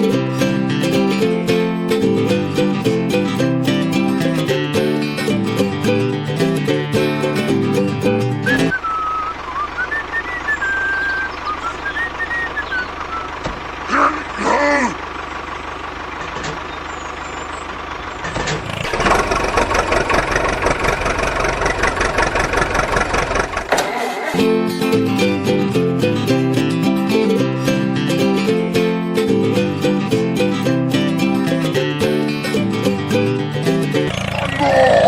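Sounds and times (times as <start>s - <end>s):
rattling motor noise: 0.2s - 24.5s, 33.3s - 35.0s.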